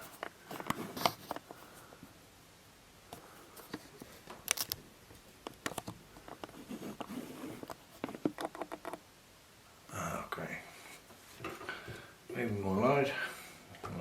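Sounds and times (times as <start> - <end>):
small clicks and knocks of hard parts: 3.1 - 9.0.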